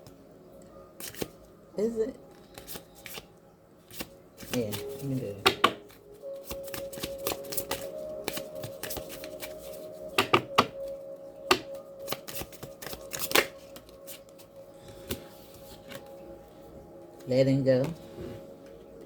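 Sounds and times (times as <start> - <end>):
cards being shuffled: 1.0 - 1.4, 2.3 - 3.3, 3.9 - 10.7, 11.5 - 16.1.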